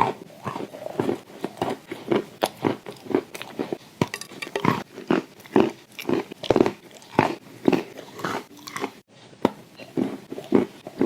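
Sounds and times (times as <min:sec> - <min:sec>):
person chewing and crunching: 0:00.0 - 0:11.0.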